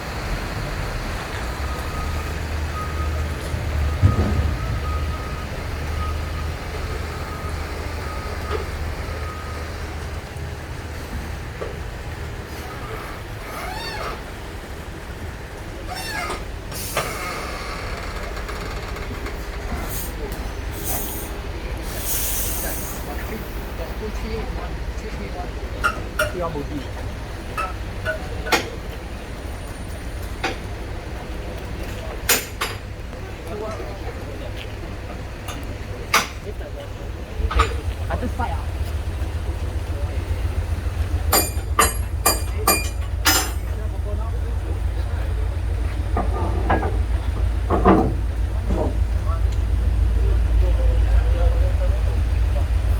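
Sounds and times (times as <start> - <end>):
diesel engine humming: 0.0 - 52.9
train rumbling: 0.0 - 52.9
reversing alarm beeping: 1.3 - 10.0
sharp clicks and knocks: 37.4 - 44.0, 45.8 - 49.7.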